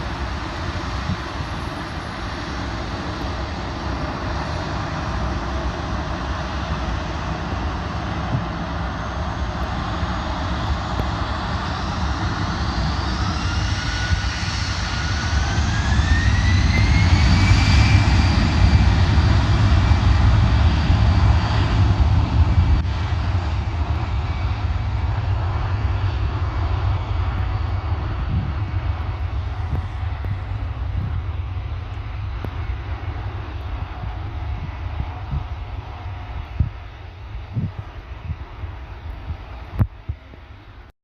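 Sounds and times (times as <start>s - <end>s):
jet airliner passing: 0.0s - 40.9s.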